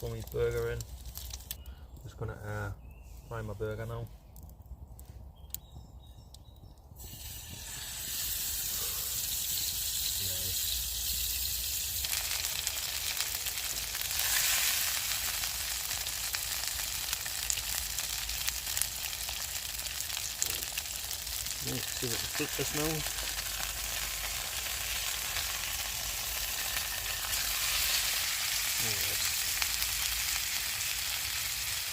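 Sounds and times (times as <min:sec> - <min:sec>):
burger sizzling in a pan: 0:07.0 - 0:31.9.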